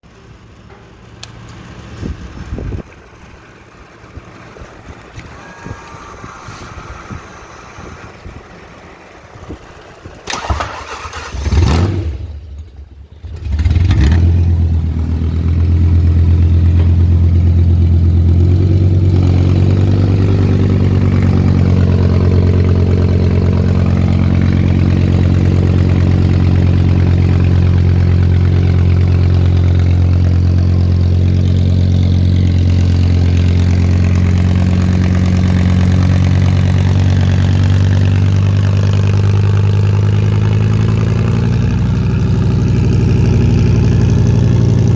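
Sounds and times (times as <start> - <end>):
engine idling: 0.0 - 13.9, 14.5 - 44.9
engine cranking: 4.8 - 8.6, 10.0 - 14.2.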